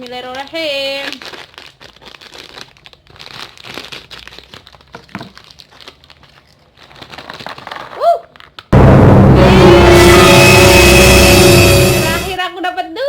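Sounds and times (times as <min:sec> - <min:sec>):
plastic snack packet crinkling: 0:00.0 - 0:08.7.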